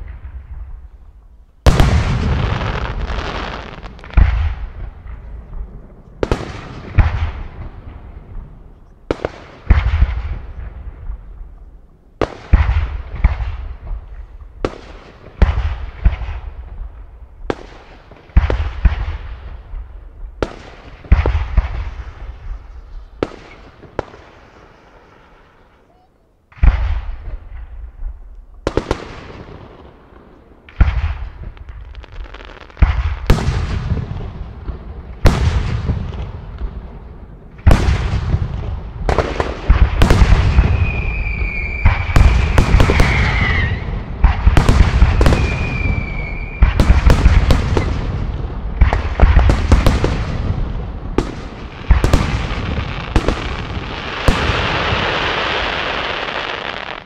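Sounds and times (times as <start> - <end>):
whistling fireworks: 1.6 - 8.1, 17.5 - 36.6, 37.5 - 57.0
firework shells booming: 1.7 - 8.4, 37.6 - 57.0.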